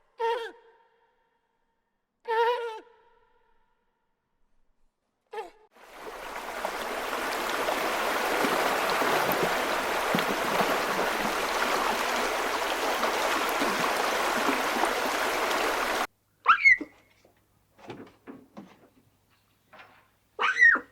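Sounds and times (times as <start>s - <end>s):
rushing splashing noise: 5.8s - 16.1s.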